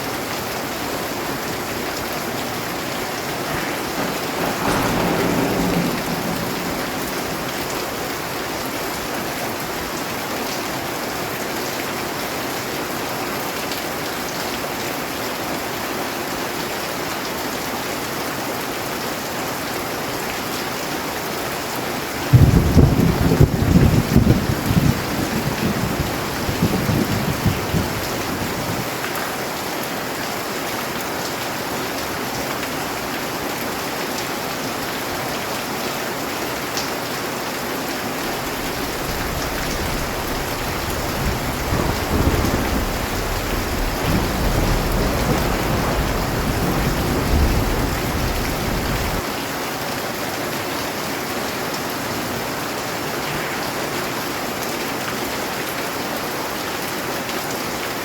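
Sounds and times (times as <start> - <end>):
heavy rain: 0.0 - 58.0
thunder rumbling: 1.3 - 10.2, 22.2 - 29.0, 37.8 - 49.3.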